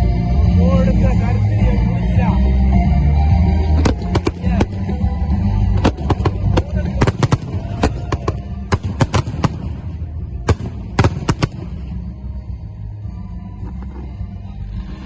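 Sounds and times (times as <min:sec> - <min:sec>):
low rumble: 0:00.0 - 0:15.0
fireworks bangs: 0:03.8 - 0:05.0, 0:05.6 - 0:12.1.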